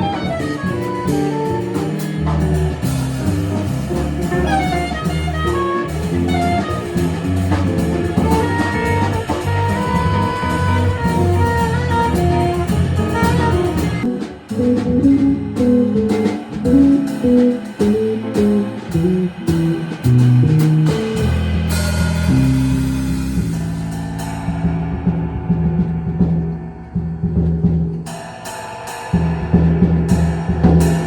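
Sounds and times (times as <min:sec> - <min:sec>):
jazz band playing live: 0:00.0 - 0:26.6.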